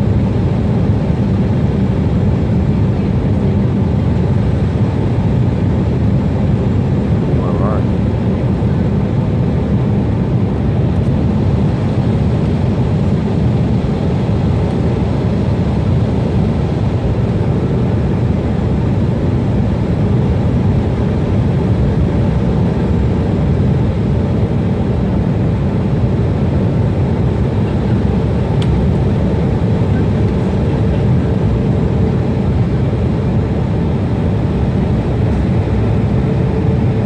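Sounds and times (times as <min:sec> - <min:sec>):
jet engines roaring: 0:00.0 - 0:37.0.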